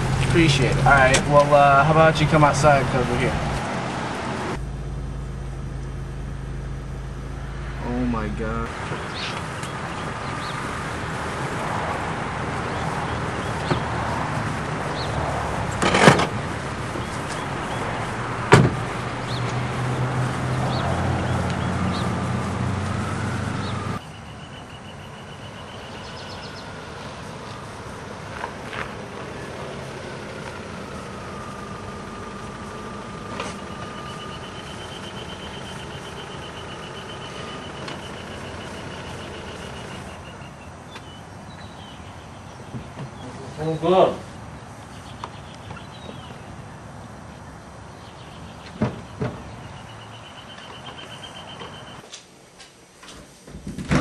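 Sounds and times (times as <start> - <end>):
car engine idling: 0.0 - 52.0
car door opening: 0.6 - 1.8, 15.0 - 19.7
car door shutting: 15.7 - 16.4, 17.0 - 19.6.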